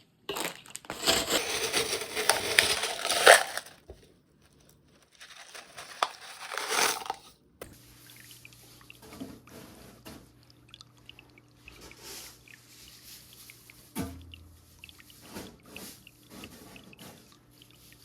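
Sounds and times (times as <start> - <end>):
stones rattling in glass tank: 0.3 - 3.7, 5.2 - 7.3.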